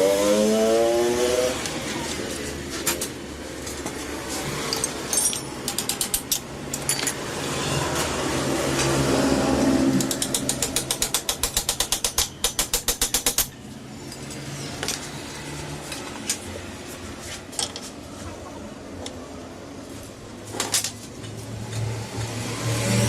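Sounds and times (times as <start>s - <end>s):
ratchet wrench clicking: 4.7s - 7.1s, 10.0s - 13.5s.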